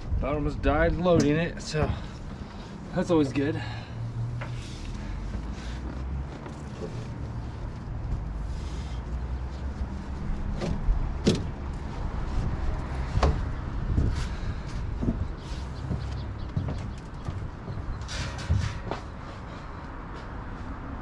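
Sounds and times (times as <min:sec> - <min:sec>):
gear knocking and clunking: 0:10.1 - 0:11.8, 0:13.0 - 0:19.1.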